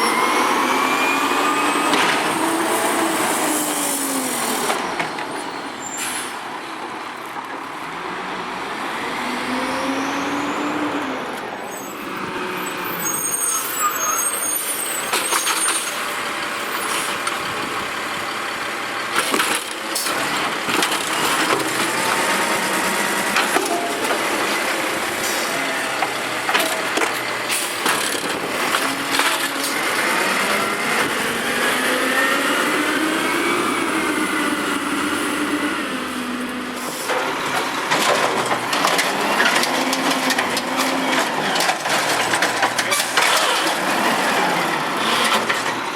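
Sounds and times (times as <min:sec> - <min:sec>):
garbage truck engine revving: 0:00.0 - 0:05.2, 0:16.0 - 0:45.9.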